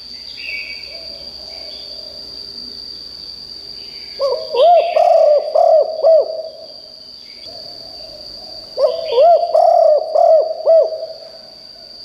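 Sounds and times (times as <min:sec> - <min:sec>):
dove cooing: 0:04.2 - 0:06.7, 0:07.5 - 0:11.5.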